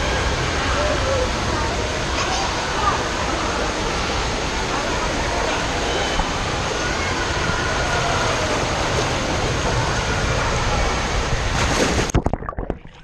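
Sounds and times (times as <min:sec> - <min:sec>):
faint voices: 0:00.0 - 0:11.5
echoing indoor waterpark din: 0:00.0 - 0:12.2
water splashing on slide: 0:04.9 - 0:13.0.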